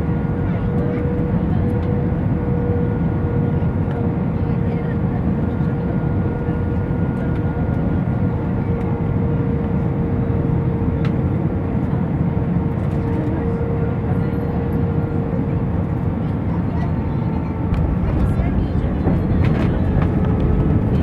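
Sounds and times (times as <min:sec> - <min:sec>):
aircraft cabin rumble: 0:00.0 - 0:21.0
steady whine: 0:17.5 - 0:21.0.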